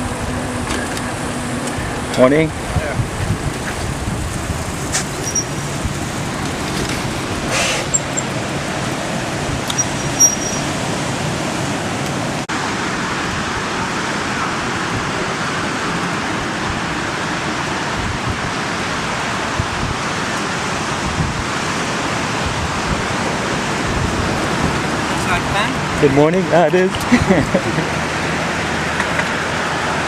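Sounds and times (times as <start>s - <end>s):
wind on microphone: 0.0s - 11.9s, 16.2s - 26.3s.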